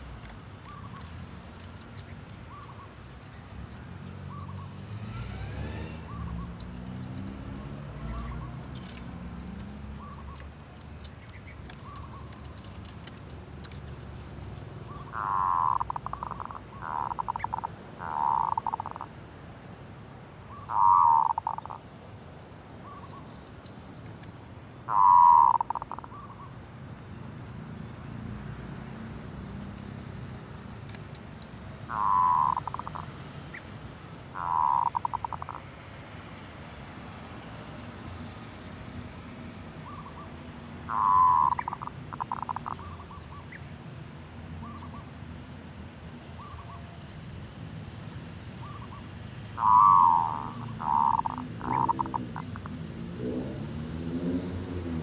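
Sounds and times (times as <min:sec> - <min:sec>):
dove cooing: 0:14.9 - 0:19.1, 0:20.6 - 0:21.8, 0:24.9 - 0:26.2, 0:31.9 - 0:33.2, 0:34.3 - 0:35.6, 0:40.9 - 0:43.2, 0:49.6 - 0:53.6.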